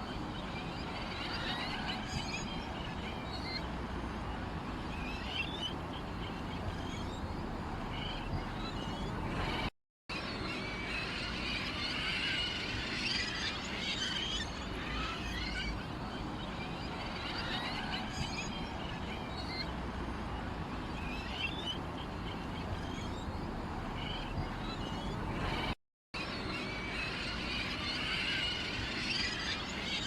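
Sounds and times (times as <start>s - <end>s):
small birds chirping: 4.9s - 9.7s, 13.1s - 25.8s
low background rumble: 5.6s - 9.7s, 18.0s - 25.8s.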